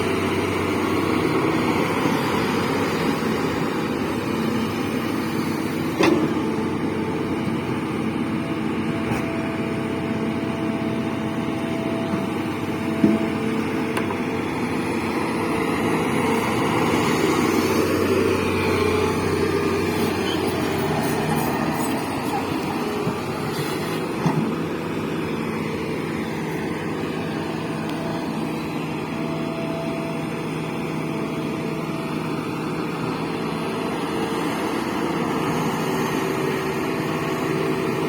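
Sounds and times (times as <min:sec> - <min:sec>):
diesel engine of heavy machine: 0:00.0 - 0:38.0.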